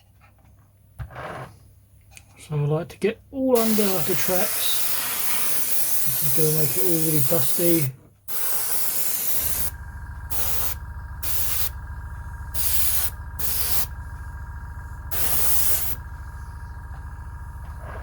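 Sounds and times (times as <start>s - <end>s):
airbrush spraying hiss: 3.6s - 9.7s, 10.3s - 11.8s, 12.5s - 13.9s, 15.1s - 16.5s
steady low hum: 8.3s - 18.0s.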